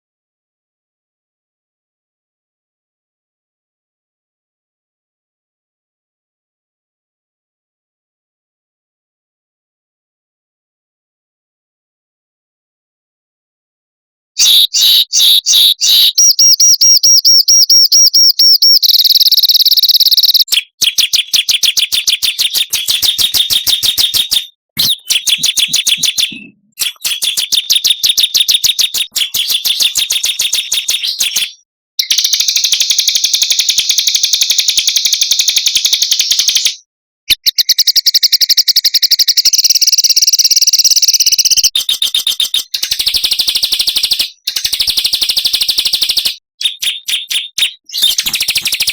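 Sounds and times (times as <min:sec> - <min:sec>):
songbirds trilling and chattering: 0:18.6 - 0:32.2, 0:46.7 - 0:48.9.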